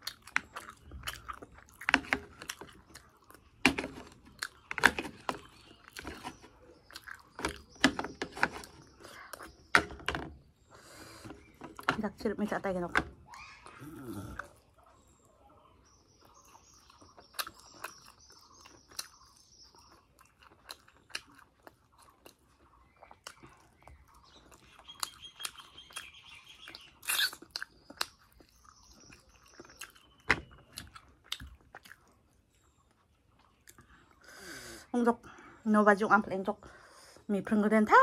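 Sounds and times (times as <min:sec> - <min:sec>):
person crunching fried bread: 0:00.0 - 0:07.8, 0:16.2 - 0:34.0.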